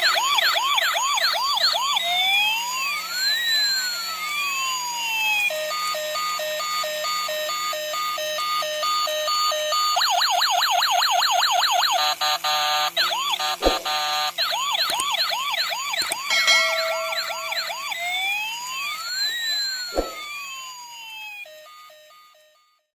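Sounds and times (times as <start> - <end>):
electronic siren: 0.0 - 22.9.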